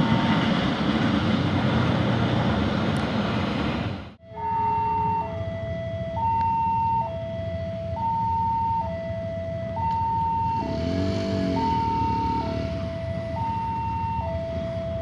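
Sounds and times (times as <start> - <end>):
level crossing two-tone alarm: 4.2 - 7.3, 8.0 - 15.0.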